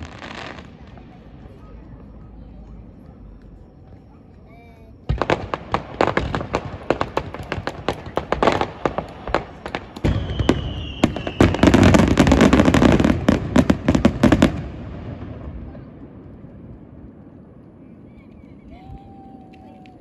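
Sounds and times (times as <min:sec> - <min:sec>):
firework bangs and crackling: 0:00.0 - 0:20.0
heavy firework boom: 0:05.1 - 0:17.1.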